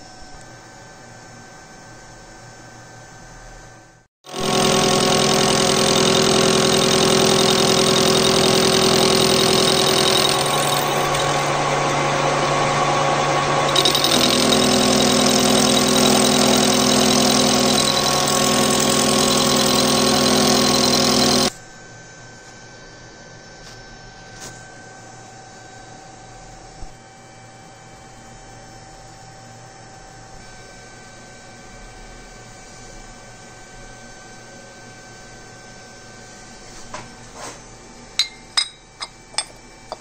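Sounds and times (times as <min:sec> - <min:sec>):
lathe motor hum and whine: 0:04.4 - 0:22.6.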